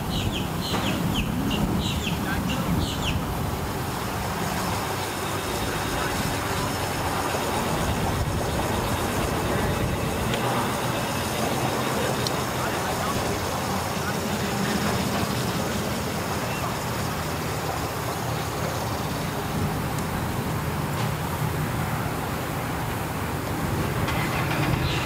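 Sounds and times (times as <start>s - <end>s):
bird chirping: 0.0s - 3.2s.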